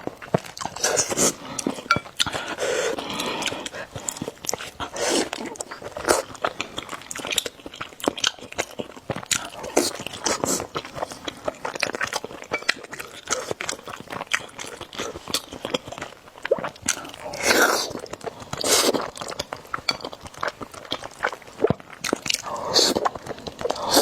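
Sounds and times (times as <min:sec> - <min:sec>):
chewing noodles with wet smacks: 0:00.0 - 0:24.0
noisy mouth sounds: 0:21.5 - 0:24.0.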